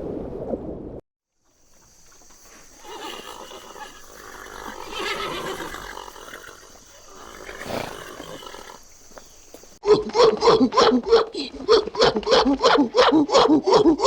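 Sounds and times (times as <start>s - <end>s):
horse neighing: 2.7s - 8.9s.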